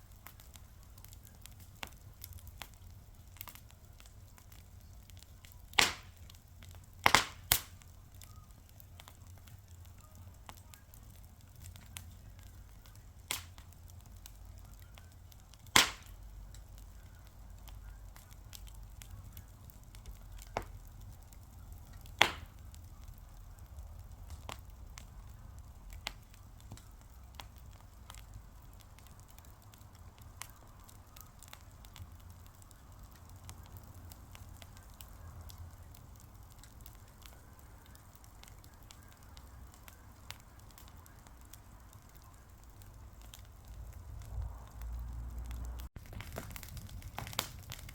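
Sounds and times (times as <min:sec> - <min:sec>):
fire pops and snaps: 0:00.0 - 0:47.9
wood fire crackling: 0:00.0 - 0:47.9.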